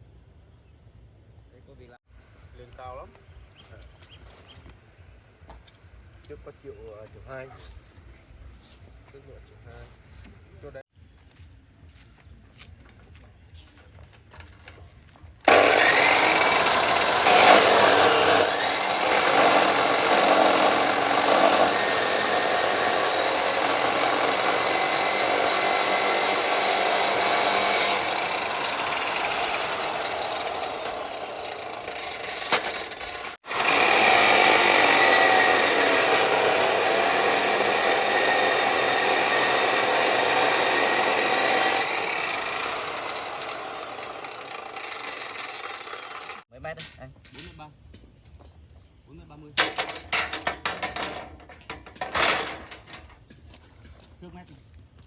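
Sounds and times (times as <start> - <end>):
chainsaw cutting wood: 15.4 - 46.5, 51.9 - 52.9.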